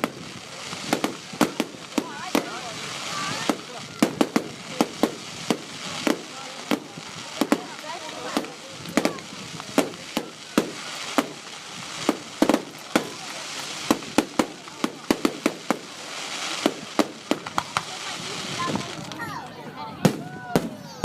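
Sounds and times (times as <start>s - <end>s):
fireworks bangs: 0.0s - 21.0s.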